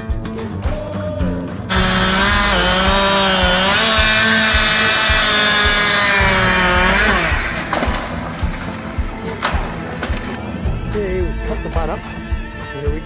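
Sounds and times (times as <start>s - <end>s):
chainsaw cutting wood: 1.7s - 10.6s.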